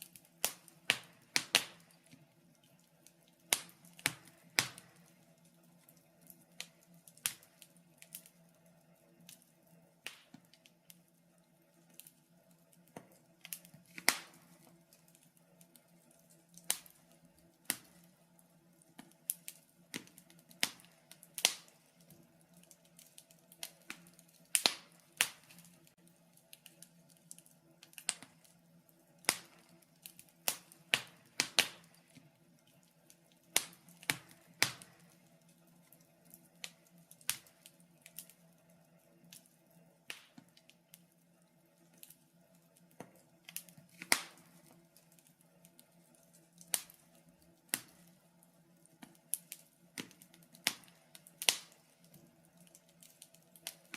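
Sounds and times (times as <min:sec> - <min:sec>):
faint steady hum: 0:00.0 - 0:53.9
wood fire crackling: 0:00.0 - 0:53.9.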